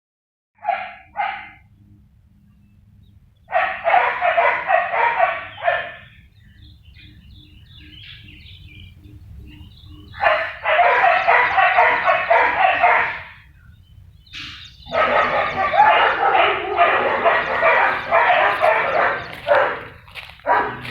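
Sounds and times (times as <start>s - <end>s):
dogs barking: 0.6s - 1.7s, 3.5s - 6.2s, 10.1s - 13.5s, 14.4s - 20.9s.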